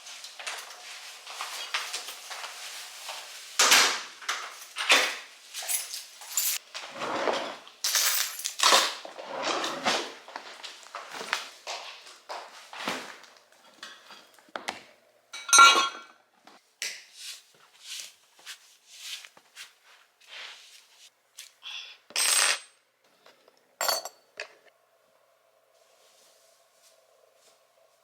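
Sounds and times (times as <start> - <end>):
dishes and utensils clattering: 15.4 - 16.2, 23.3 - 24.7.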